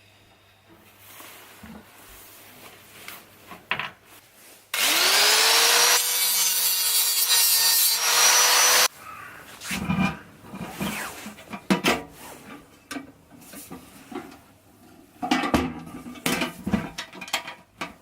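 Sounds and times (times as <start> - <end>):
power tool grinding: 4.8 - 8.9.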